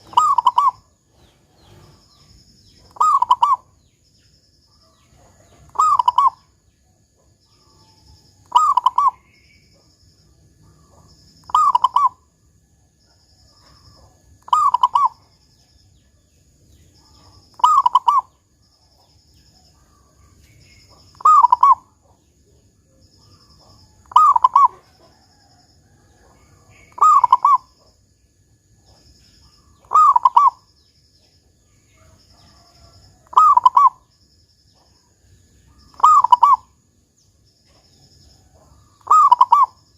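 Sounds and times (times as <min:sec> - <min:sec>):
dove cooing: 0:00.0 - 0:02.2, 0:02.8 - 0:03.8, 0:05.1 - 0:06.5, 0:07.8 - 0:09.3, 0:10.8 - 0:12.3, 0:13.6 - 0:15.3, 0:17.0 - 0:18.4, 0:20.8 - 0:22.2, 0:23.3 - 0:28.0, 0:28.9 - 0:30.7, 0:32.0 - 0:34.1, 0:35.8 - 0:36.8, 0:38.5 - 0:39.8.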